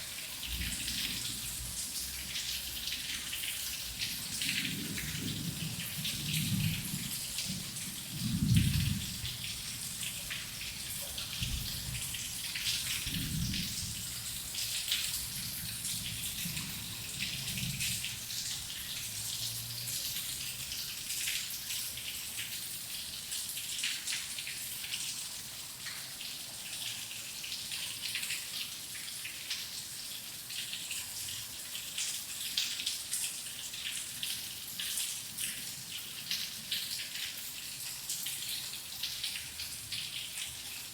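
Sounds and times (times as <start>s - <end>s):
heavy rain: 0.0s - 22.8s.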